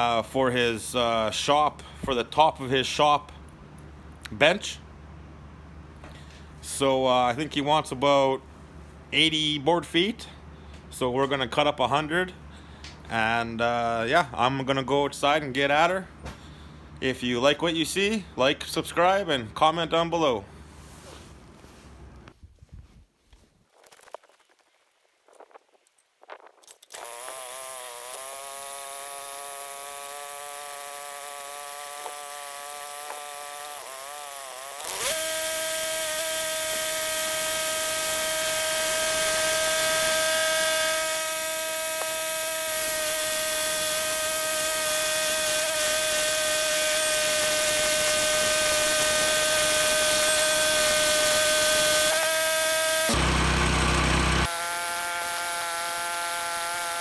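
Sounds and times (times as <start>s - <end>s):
small gasoline engine running: 26.8s - 57.0s.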